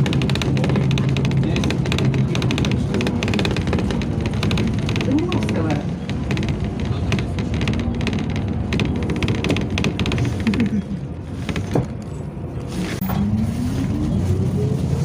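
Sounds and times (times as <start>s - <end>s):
rattles and clicks: 0.0s - 12.3s
bus engine running: 0.0s - 15.0s.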